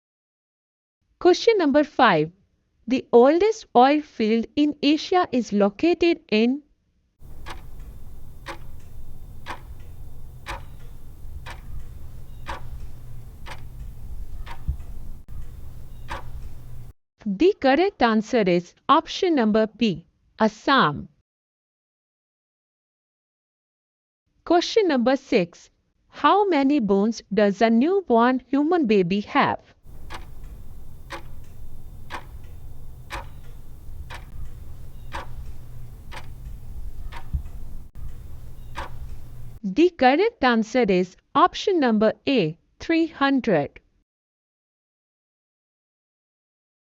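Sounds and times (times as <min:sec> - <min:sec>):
clock ticking: 0:07.2 - 0:16.9, 0:29.9 - 0:39.6
low steady hum: 0:07.2 - 0:16.9, 0:29.9 - 0:39.6.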